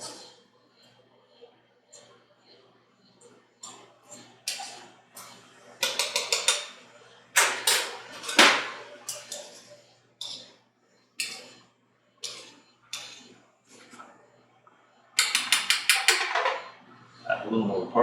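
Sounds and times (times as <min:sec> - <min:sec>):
utensil scraping a bowl: 0:12.2 - 0:14.0.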